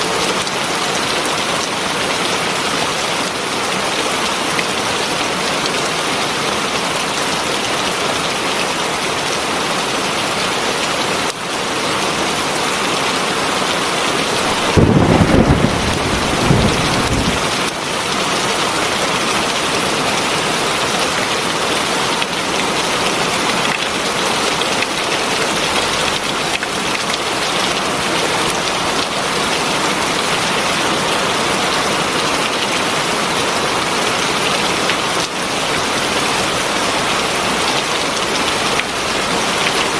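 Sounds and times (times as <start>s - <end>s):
heavy rain: 0.0s - 39.9s
thunder rumble: 14.5s - 17.7s.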